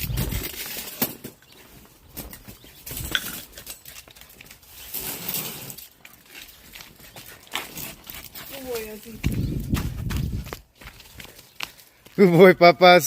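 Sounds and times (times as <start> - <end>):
animals scuffling in play: 0.1 - 12.2.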